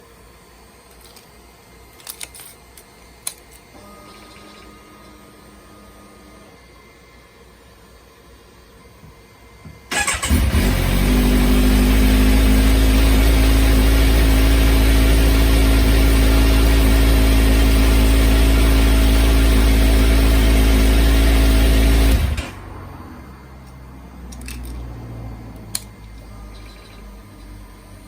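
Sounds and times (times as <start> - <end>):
motorcycle engine starting and idling: 9.9 - 23.0.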